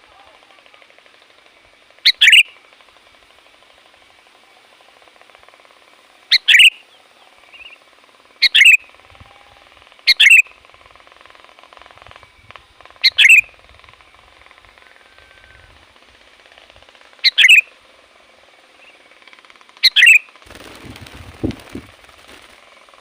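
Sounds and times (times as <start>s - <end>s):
faint steady hiss: 0.0s - 23.0s
bird double-note calls: 2.0s - 2.6s, 6.3s - 17.8s, 18.7s - 21.8s.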